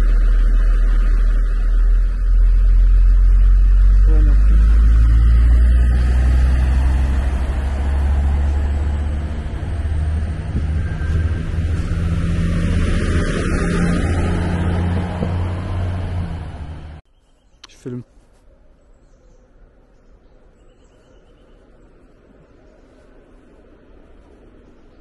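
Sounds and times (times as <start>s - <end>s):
diesel train engine rumble: 0.0s - 17.0s
high whine: 0.0s - 17.0s.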